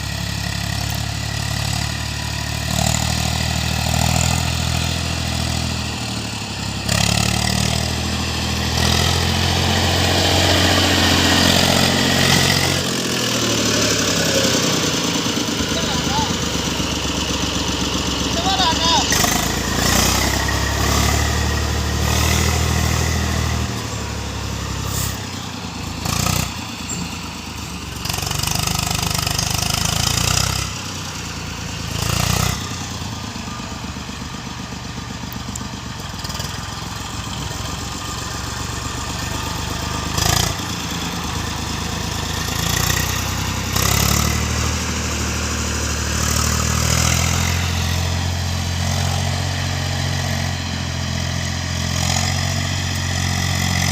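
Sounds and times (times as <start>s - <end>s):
tractor engine under load: 0.0s - 53.9s.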